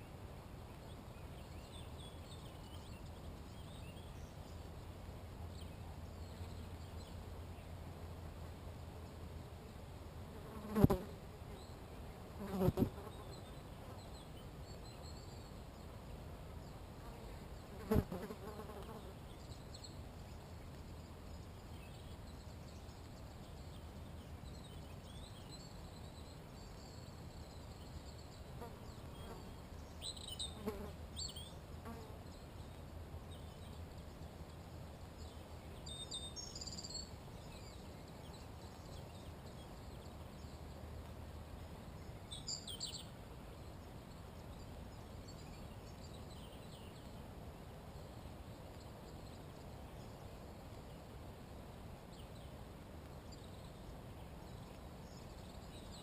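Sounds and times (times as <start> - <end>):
fly buzzing past: 10.4 - 11.2, 12.4 - 13.3, 17.7 - 19.2
faint bird chirps: 12.5 - 16.0, 18.6 - 40.8.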